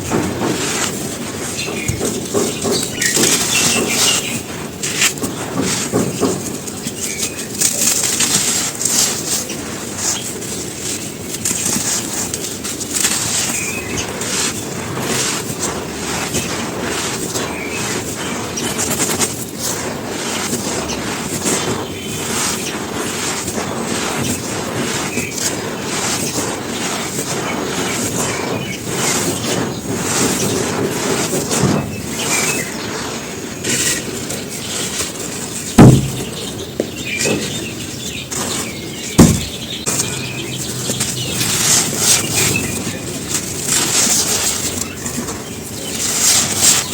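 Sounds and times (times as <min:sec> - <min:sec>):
charcoal and ash crunching: 0:00.0 - 0:46.9
heavy thumps: 0:35.6 - 0:42.4.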